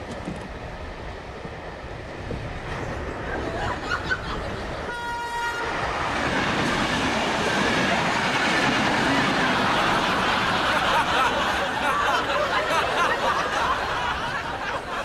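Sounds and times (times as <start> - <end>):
moving train rumble: 0.0 - 15.0
train horn toot: 4.9 - 5.9.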